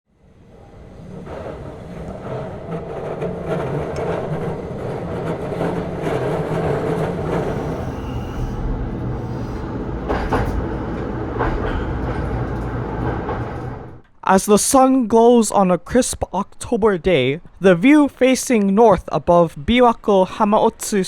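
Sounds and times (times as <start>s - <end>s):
electric train rumbling on rails: 0.1s - 14.1s.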